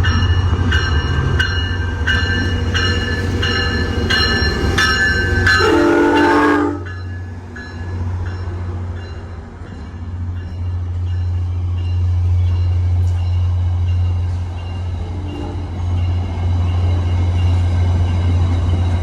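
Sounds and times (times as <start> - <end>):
train horn blast: 5.5 - 7.0.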